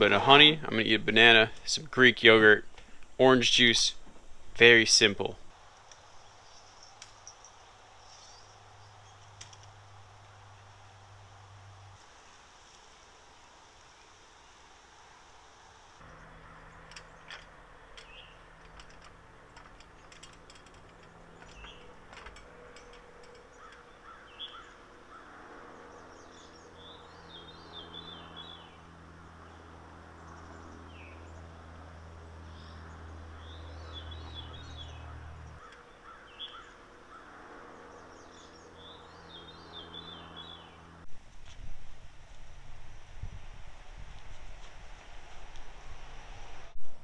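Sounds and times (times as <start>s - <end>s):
bird chirps: 6.2s - 9.4s, 21.2s - 28.9s, 32.4s - 40.9s
faint low hum: 13.2s - 47.0s
songbird singing descending notes: 21.2s - 40.9s.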